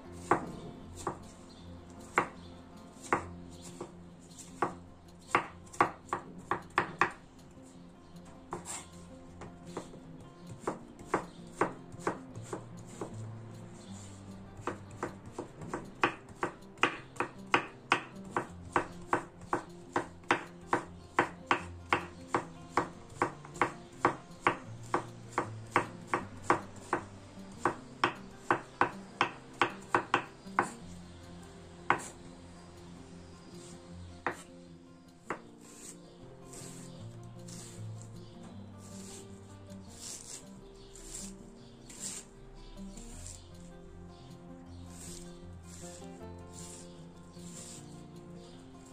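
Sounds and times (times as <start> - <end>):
soft background music: 0.0 - 48.9
knife chopping on wooden board: 0.2 - 1.3, 2.0 - 2.4, 3.0 - 7.2, 8.5 - 13.2, 13.9 - 30.9, 31.9 - 32.2, 33.6 - 34.5, 35.2 - 36.0, 36.6 - 36.9, 37.5 - 37.8, 38.9 - 39.3, 39.9 - 40.4, 41.0 - 42.3, 44.9 - 46.8, 47.4 - 47.8.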